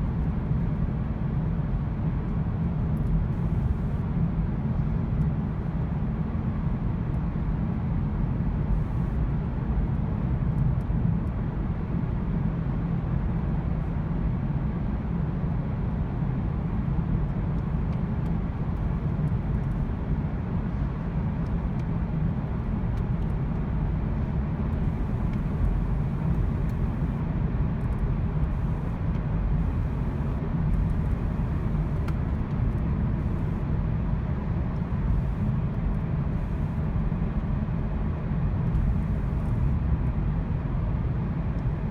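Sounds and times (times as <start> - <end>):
road noise: 21.7 - 33.7
misfiring car engine rumble: 23.9 - 27.2, 28.1 - 33.7.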